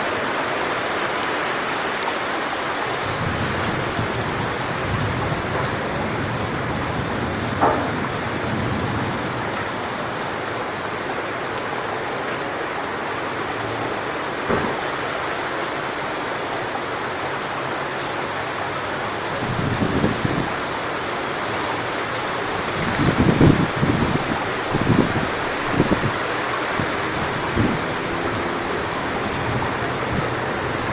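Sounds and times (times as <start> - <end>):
wind through palm fronds: 0.0 - 30.9
wind buffeting microphone: 19.4 - 20.7, 22.4 - 30.9.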